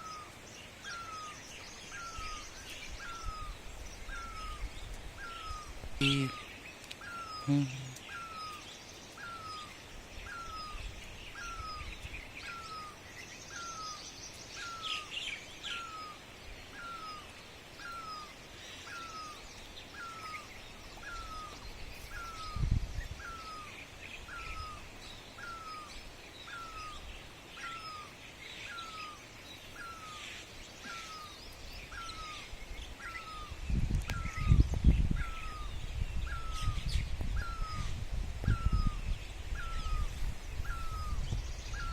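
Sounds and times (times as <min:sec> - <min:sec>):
birds chirping: 0:00.0 - 0:41.9
bird repeating hooked call: 0:06.0 - 0:06.5.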